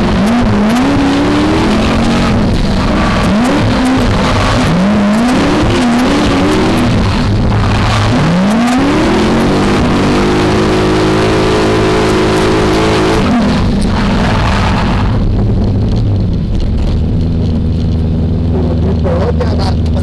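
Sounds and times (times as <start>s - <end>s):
car engine revving hard: 0.0s - 15.8s.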